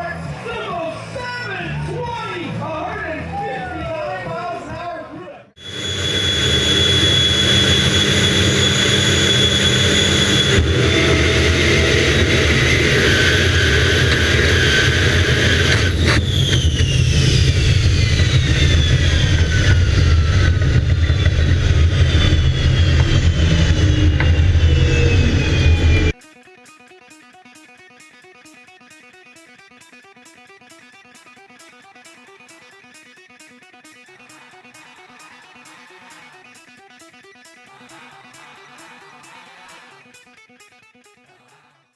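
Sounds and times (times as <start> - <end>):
jet engine whining: 5.6 - 26.2
guitar music: 25.0 - 41.5.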